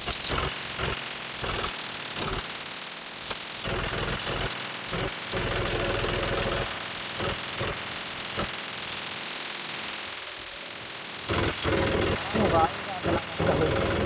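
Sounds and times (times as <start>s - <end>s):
heavy diesel engine knocking: 3.5s - 9.2s, 10.8s - 14.0s.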